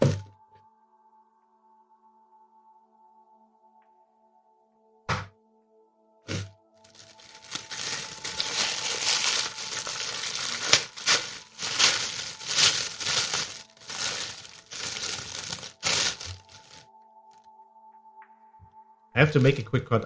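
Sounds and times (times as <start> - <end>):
paper packaging crinkling: 6.3 - 16.8.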